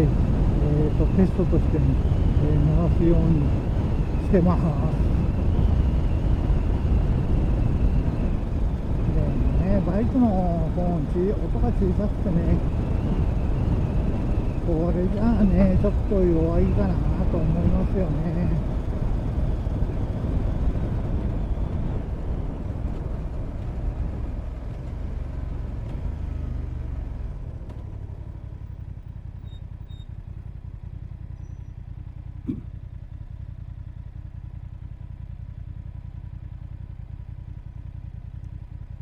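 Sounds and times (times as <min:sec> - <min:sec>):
wind noise: 0:00.0 - 0:24.4
motorcycle engine running: 0:00.0 - 0:39.0.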